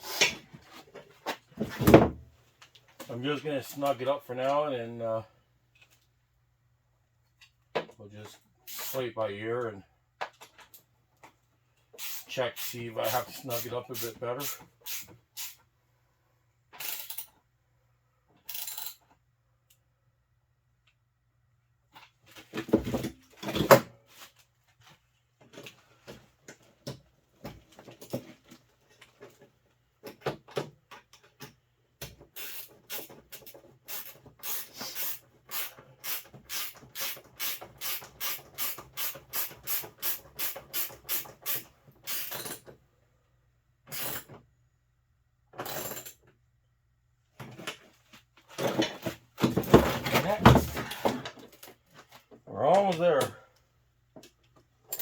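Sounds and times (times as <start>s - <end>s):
ratchet wrench clicking: 8.7s - 9.0s, 12.0s - 13.2s, 16.8s - 17.3s, 18.5s - 19.0s, 32.4s - 42.6s
tools and parts clattering: 16.8s - 17.4s, 45.5s - 46.4s, 47.4s - 52.4s, 54.2s - 55.0s.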